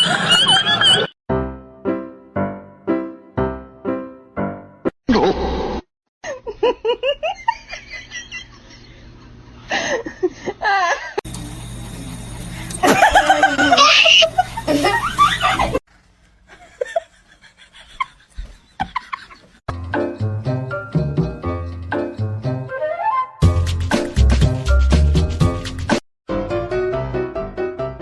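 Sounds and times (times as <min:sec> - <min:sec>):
people laughing: 0:00.0 - 0:01.1, 0:12.8 - 0:15.8.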